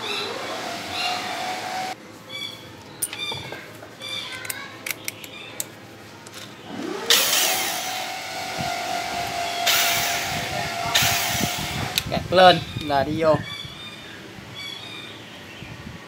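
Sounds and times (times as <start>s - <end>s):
cordless screwdriver motor whirring: 6.7s - 12.1s.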